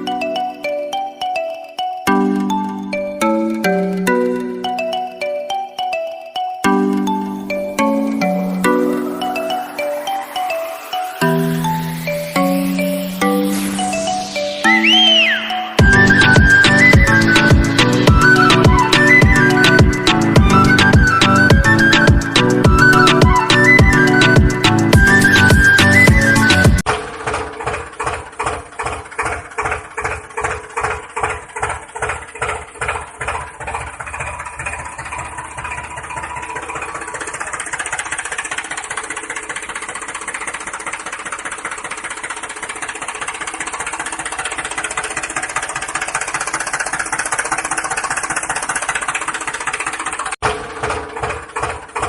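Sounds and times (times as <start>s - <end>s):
small engine chugging: 0.0s - 52.0s.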